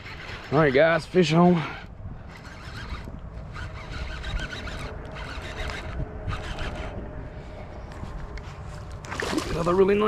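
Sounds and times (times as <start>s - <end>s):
fishing reel whirring: 0.0s - 7.4s.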